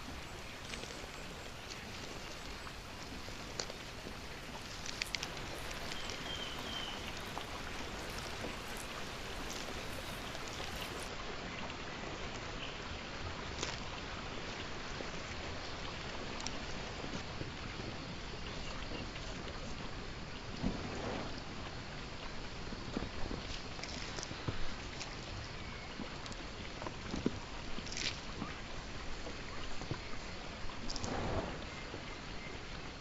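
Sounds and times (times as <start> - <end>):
sharp drops and drips: 0.0 - 11.1
steady rain falling: 0.0 - 11.1.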